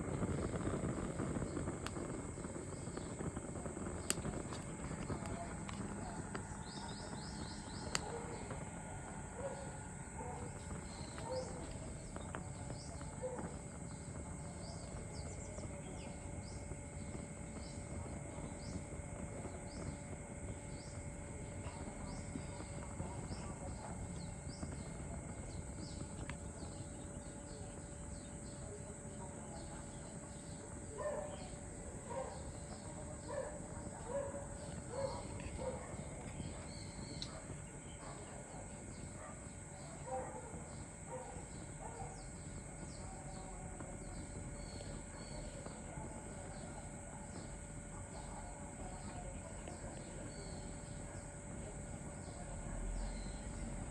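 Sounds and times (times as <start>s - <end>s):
lower bird calls: 0.0s - 39.0s.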